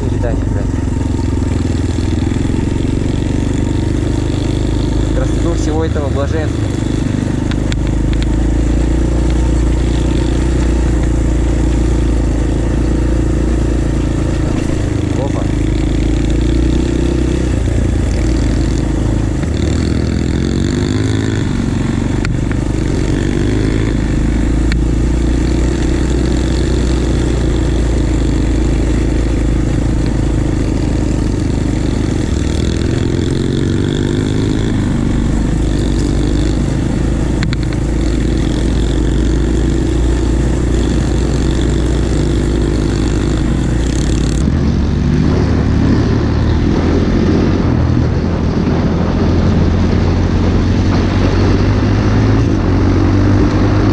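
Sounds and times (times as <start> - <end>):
pit bike engine revving: 0.0 - 53.9.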